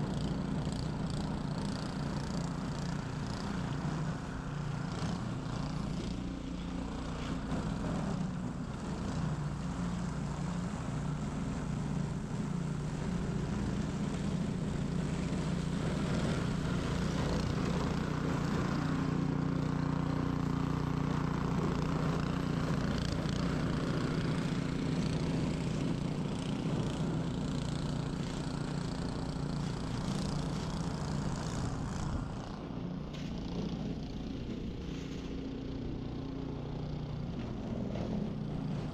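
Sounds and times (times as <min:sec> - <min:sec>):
snow blower running: 0:00.0 - 0:38.9.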